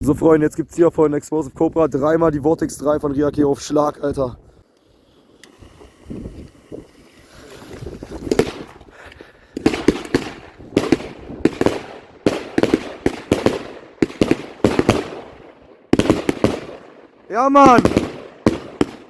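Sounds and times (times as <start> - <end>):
fireworks hissing: 4.6 - 11.8
fireworks bangs: 5.7 - 9.0, 9.6 - 19.0.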